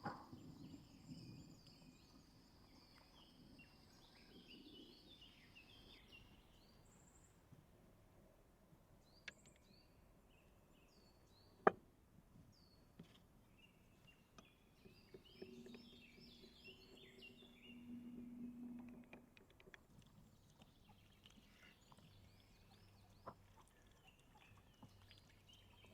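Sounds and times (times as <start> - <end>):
small birds chirping: 0.0 - 7.4, 12.5 - 25.9
low steady hum: 13.7 - 25.9.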